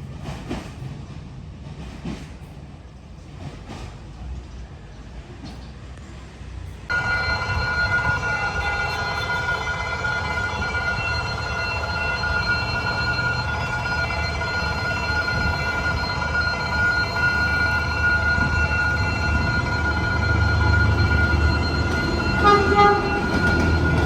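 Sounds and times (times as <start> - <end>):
train rumbling: 0.0 - 24.0
high-pitched ringing tone: 6.9 - 24.0.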